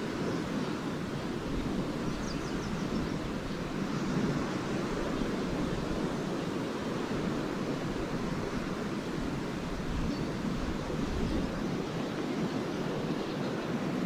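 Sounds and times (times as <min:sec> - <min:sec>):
lake waves washing on shore: 0:00.0 - 0:14.0
swallows twittering: 0:00.2 - 0:04.0, 0:10.0 - 0:10.5.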